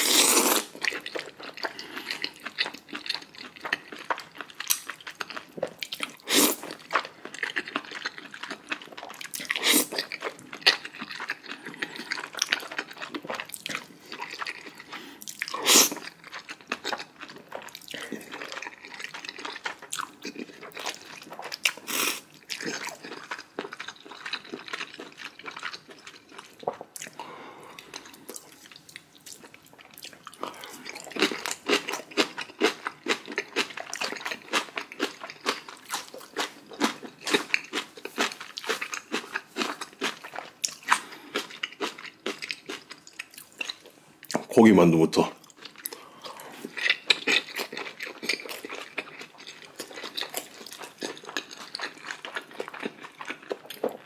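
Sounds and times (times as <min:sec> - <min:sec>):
wet chewing noodles: 0:00.0 - 0:44.4, 0:45.4 - 0:54.0.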